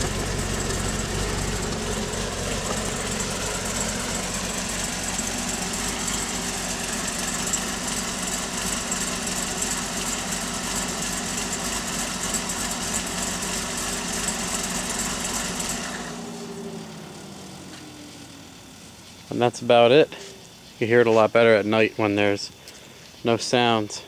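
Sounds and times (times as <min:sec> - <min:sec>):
car engine idling with uneven lope: 0:00.0 - 0:24.0.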